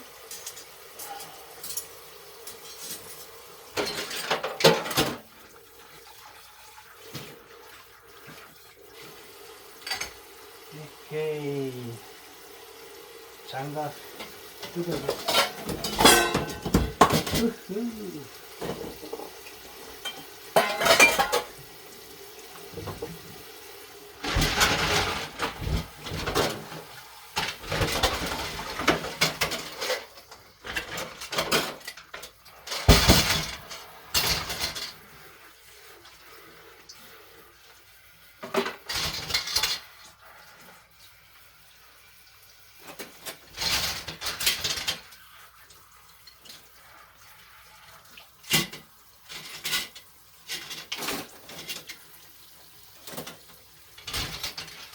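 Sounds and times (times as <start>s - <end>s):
running tap water: 0.0s - 54.9s
dishes and cutlery clattering: 0.2s - 5.3s, 9.8s - 10.2s, 14.2s - 17.7s, 18.6s - 19.4s, 20.0s - 21.6s, 24.2s - 35.0s, 38.4s - 40.0s, 42.8s - 45.1s, 48.4s - 52.0s, 53.0s - 54.9s.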